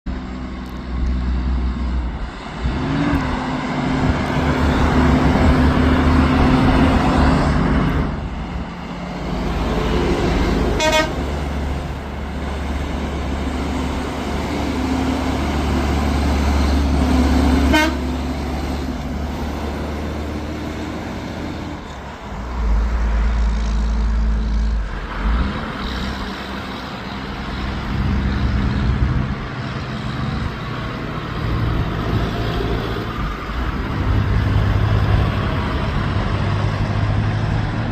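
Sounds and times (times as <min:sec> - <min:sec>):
heavy truck engines under load: 0:00.0 - 0:37.9
short horn toots: 0:10.7 - 0:11.3, 0:17.6 - 0:18.2.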